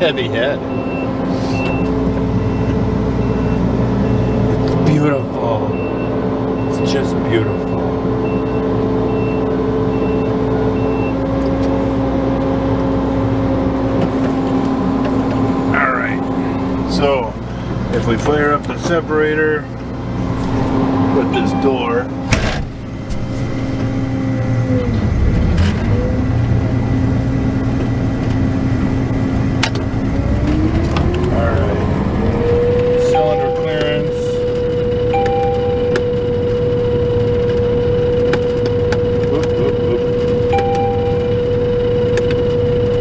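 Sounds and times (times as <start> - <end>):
harvester engine running: 0.0 - 43.0
whine rising in pitch: 12.6 - 17.5, 19.8 - 22.4, 23.6 - 43.0
short high beep: 35.1 - 36.0.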